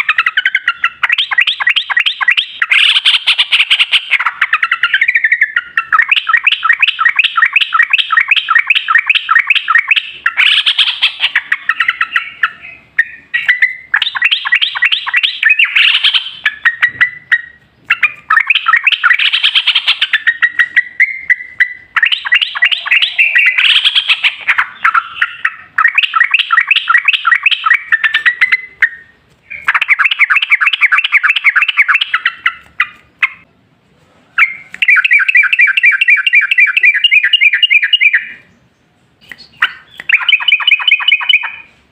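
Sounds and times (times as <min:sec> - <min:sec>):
bulbul calling in rolling runs: 0:00.0 - 0:33.5, 0:34.4 - 0:38.5, 0:39.4 - 0:41.7.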